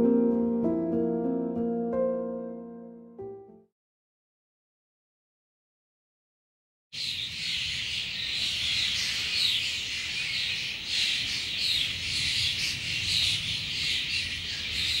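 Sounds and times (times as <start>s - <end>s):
birds chirping and calling: 7.0s - 15.0s.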